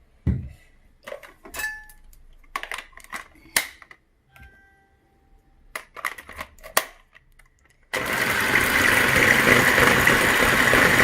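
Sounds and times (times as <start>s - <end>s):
electric mixer running: 8.0s - 11.0s.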